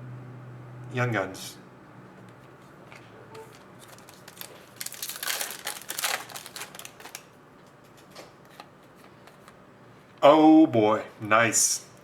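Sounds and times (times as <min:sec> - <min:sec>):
card wrapper rustling and crinkling: 0:03.5 - 0:07.4.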